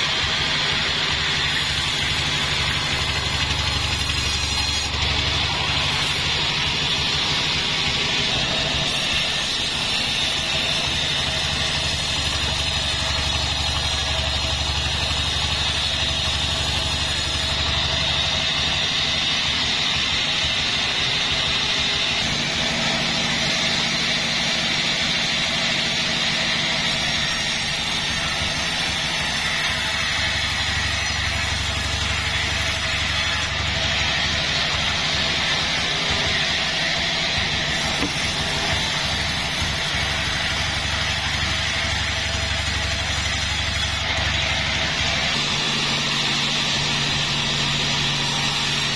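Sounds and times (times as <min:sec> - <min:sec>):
high machine whine: 0:00.0 - 0:48.9
sawmill engine drone: 0:00.0 - 0:48.9.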